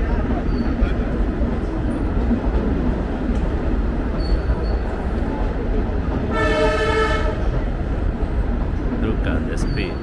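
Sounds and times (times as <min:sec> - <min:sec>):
train horn blast: 0:06.3 - 0:07.6.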